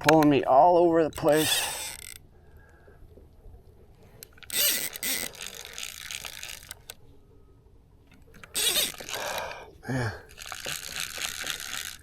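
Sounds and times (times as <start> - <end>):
fishing reel ratcheting: 1.0 - 2.3, 4.2 - 7.0, 8.3 - 9.6, 10.3 - 12.0.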